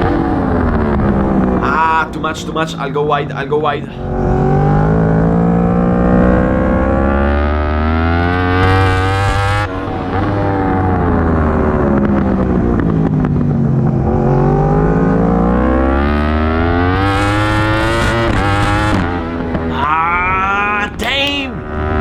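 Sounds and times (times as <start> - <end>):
racing motorcycle engine: 4.0 - 19.7.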